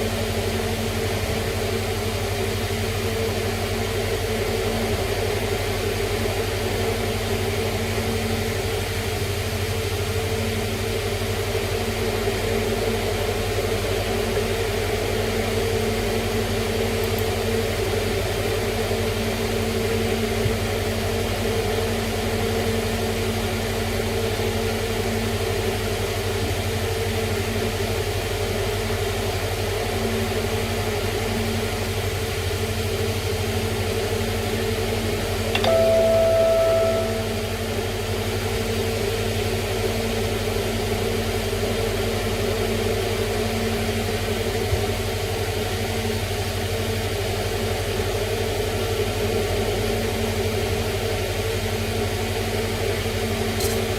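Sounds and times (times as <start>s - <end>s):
machine hum with low drone: 32.3s - 48.7s.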